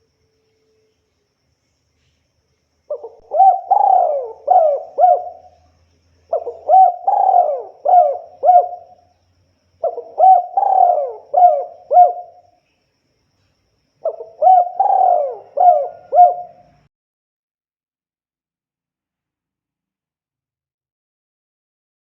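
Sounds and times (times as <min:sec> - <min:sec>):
dove cooing: 0:02.9 - 0:05.7, 0:06.3 - 0:09.0, 0:09.8 - 0:12.4, 0:14.0 - 0:16.9.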